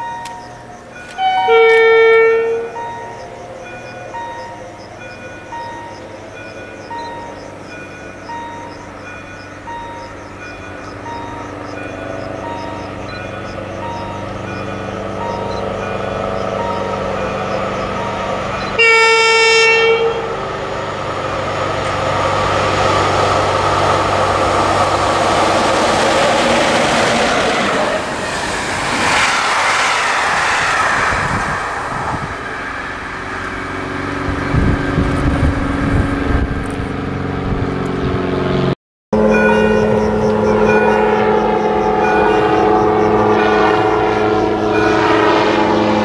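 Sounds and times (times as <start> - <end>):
train wheels rushing on rail: 0.0 - 46.0
locomotive horn blast: 1.0 - 3.2, 11.3 - 28.2, 30.7 - 46.0.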